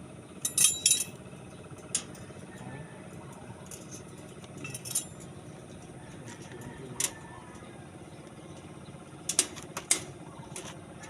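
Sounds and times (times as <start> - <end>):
steady low hum: 0.0 - 11.0
steel bars clinking: 0.4 - 1.2, 3.6 - 5.4.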